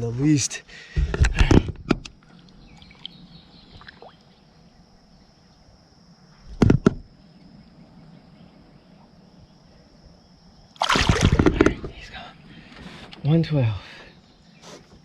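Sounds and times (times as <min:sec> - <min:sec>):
sharp knocks on boat: 0:06.6 - 0:07.0.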